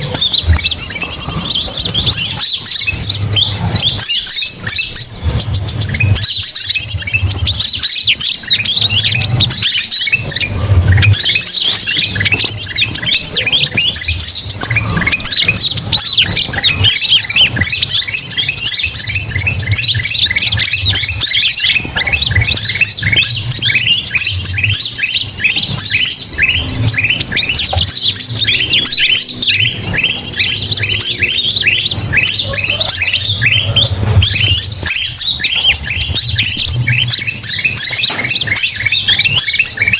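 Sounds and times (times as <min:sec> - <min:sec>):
songbird flock chirping: 0:00.0 - 0:39.9.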